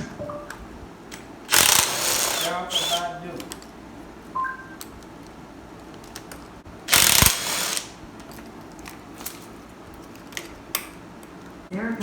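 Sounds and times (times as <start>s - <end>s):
ratchet wrench clicking: 1.5s - 3.0s, 6.9s - 7.9s.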